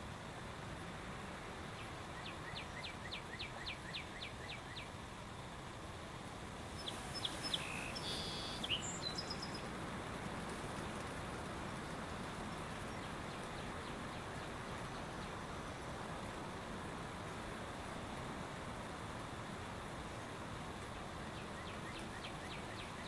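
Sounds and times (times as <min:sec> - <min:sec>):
outdoor background noise: 0:00.0 - 0:23.0
birds calling: 0:06.7 - 0:16.0, 0:21.0 - 0:23.0.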